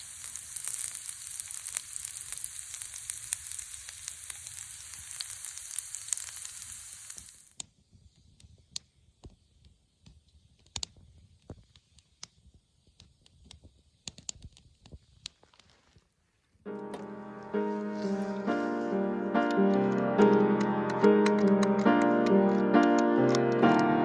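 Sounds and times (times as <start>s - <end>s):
food sizzling in a pan: 0.0s - 7.6s
sharp pops and crackles: 0.0s - 16.2s, 17.8s - 23.9s.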